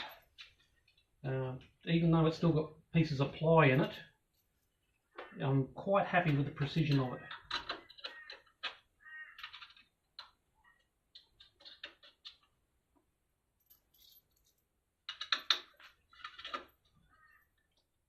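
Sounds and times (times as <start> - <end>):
metal parts clinking: 13.6 - 16.9.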